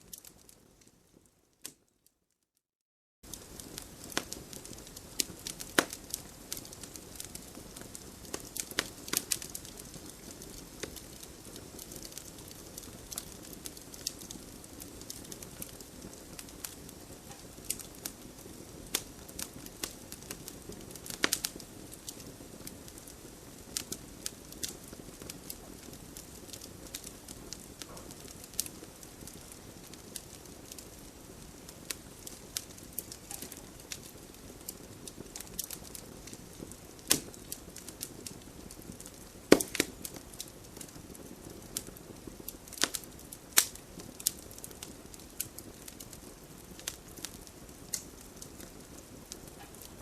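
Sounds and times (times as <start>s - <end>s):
campfire burning: 0.0s - 1.9s, 3.2s - 50.0s
fire crackling and popping: 0.0s - 2.0s, 3.2s - 50.0s.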